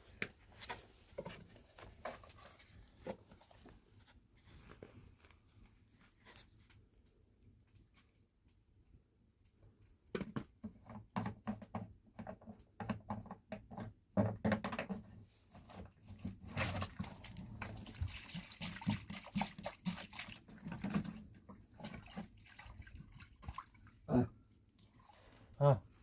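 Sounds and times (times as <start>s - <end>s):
water pouring and splashing: 15.6s - 24.1s, 24.7s - 25.4s.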